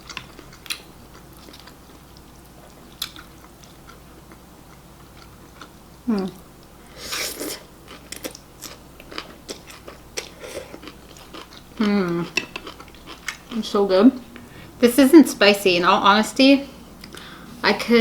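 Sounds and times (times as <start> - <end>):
wet chewing: 7.4 - 13.6.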